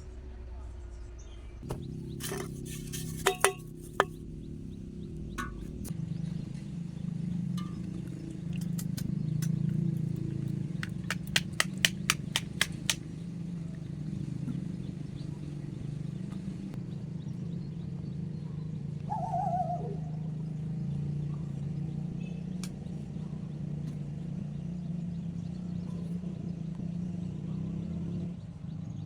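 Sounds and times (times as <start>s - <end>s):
steady low hum: 0.0s - 26.9s
wavering animal call: 19.1s - 20.4s.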